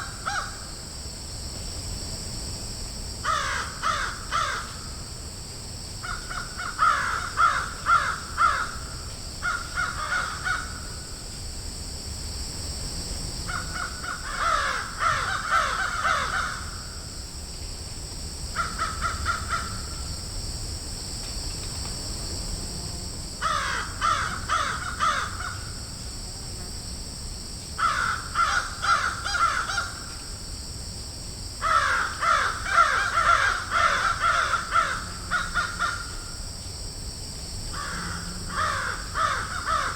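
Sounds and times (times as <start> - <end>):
crows cawing: 0.0 - 0.6, 3.2 - 4.8, 6.0 - 10.9, 13.5 - 16.8, 18.6 - 20.0, 23.4 - 25.7, 27.8 - 30.0, 31.6 - 36.2, 37.8 - 39.9
high-pitched background hiss: 0.0 - 39.9.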